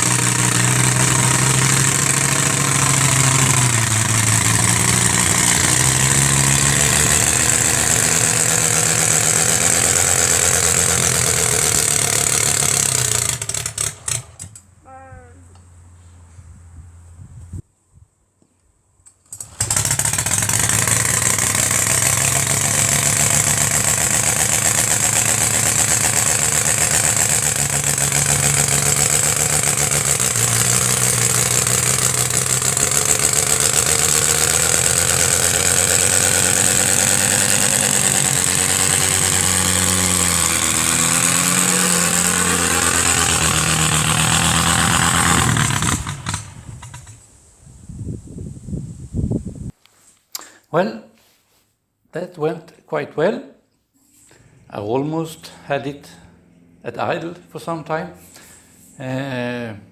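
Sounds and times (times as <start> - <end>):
radial engine running: 0.0 - 14.5, 19.4 - 47.2.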